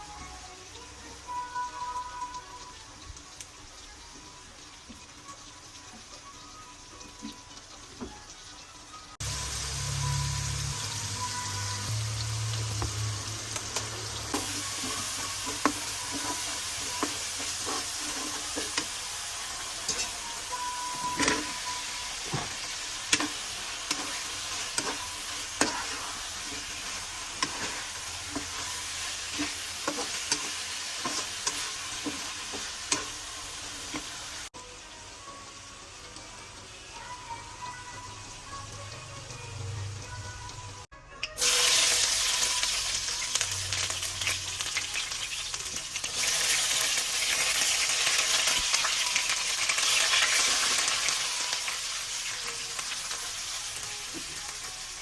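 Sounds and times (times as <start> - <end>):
food sizzling in hot oil: 0.0 - 55.0
utensil scraping a pan: 14.3 - 18.9.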